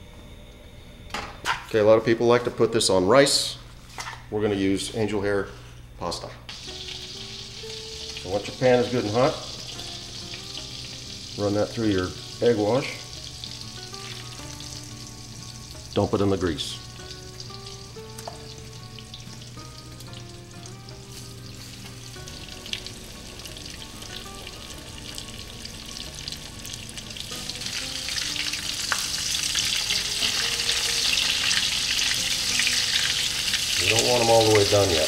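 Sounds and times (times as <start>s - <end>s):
chicken sizzling in a frying pan: 6.5s - 35.0s.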